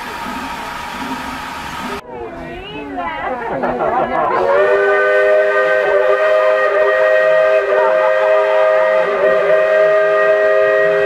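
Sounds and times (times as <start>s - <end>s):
steam locomotive whistle blast: 4.4s - 11.0s.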